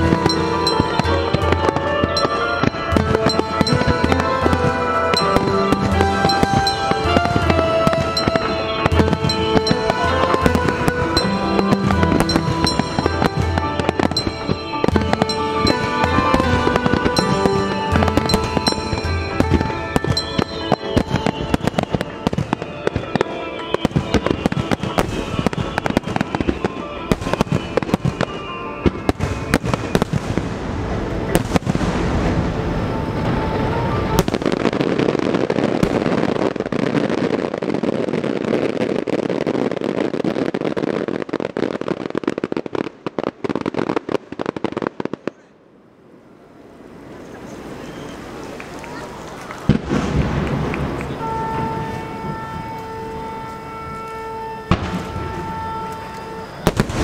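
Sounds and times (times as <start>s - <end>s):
music playing: 0.0s - 36.7s
fireworks bangs and crackling: 0.0s - 45.6s, 46.6s - 57.0s.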